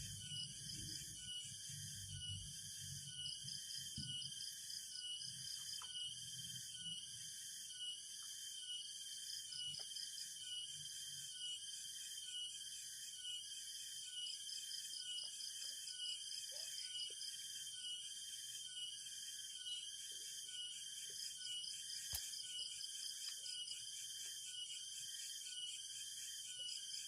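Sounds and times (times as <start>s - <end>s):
insect chorus trilling: 0.0s - 27.0s
sharp click: 22.1s - 22.4s.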